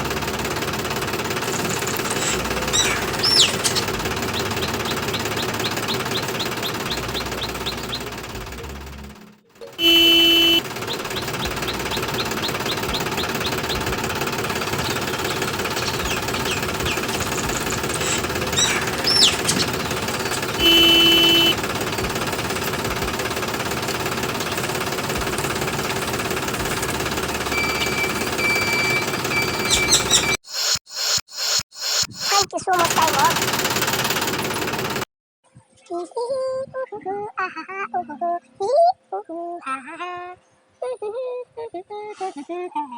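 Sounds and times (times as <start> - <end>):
tractor engine knocking rattle: 0.0 - 30.4, 32.3 - 35.1
short beeps: 9.7 - 10.6.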